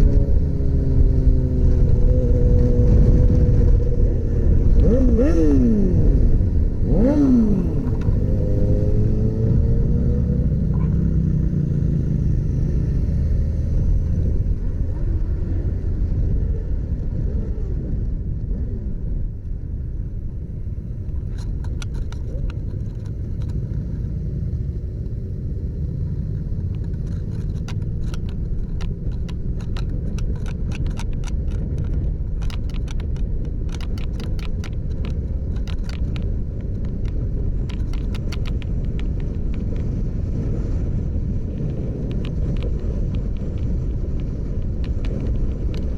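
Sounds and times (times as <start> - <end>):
motorcycle engine rumble: 0.0 - 45.9
sharp clicks: 20.6 - 25.2, 25.8 - 45.9.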